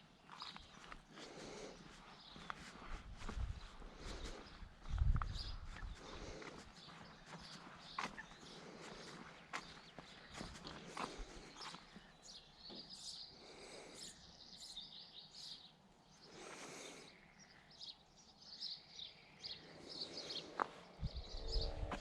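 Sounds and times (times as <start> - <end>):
small birds chirping: 0.0 - 22.0
low rumble: 20.8 - 22.0.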